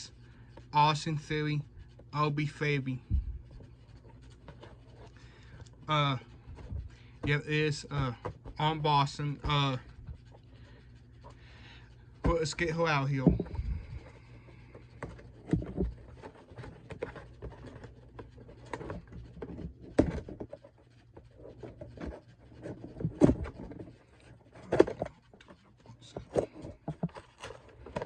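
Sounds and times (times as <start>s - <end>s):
cardboard and plastic crinkling: 12.2s - 28.0s.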